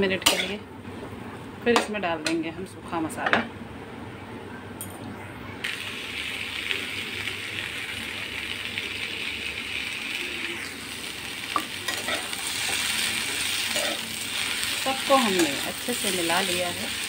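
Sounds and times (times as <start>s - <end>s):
vegetables sizzling in hot oil: 5.6s - 17.0s.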